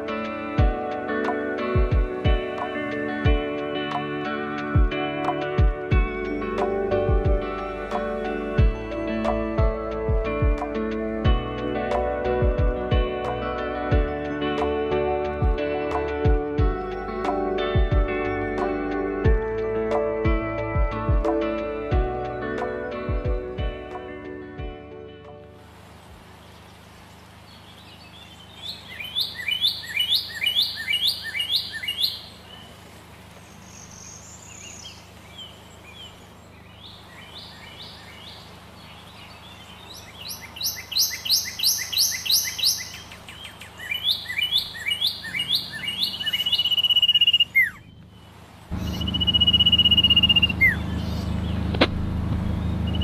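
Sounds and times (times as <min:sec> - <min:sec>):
songbird singing: 0:00.0 - 0:53.0
loud low rumble: 0:48.7 - 0:53.0.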